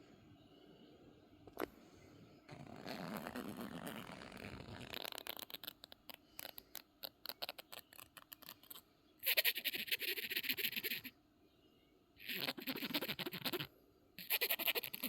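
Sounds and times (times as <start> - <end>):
cat chattering: 5.1 - 11.1, 12.2 - 15.0.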